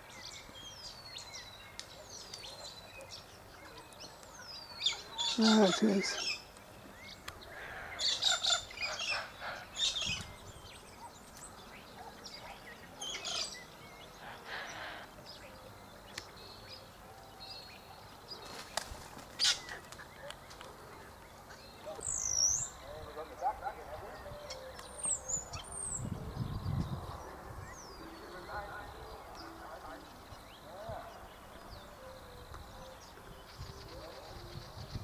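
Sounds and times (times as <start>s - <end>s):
faint outdoor background: 0.0s - 35.0s
bird chirps and calls: 0.1s - 15.5s.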